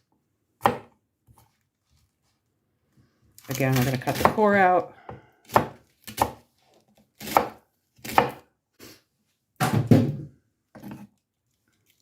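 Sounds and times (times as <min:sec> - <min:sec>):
knife cutting cabbage on board: 0:00.6 - 0:01.6, 0:05.4 - 0:08.5, 0:10.7 - 0:11.2.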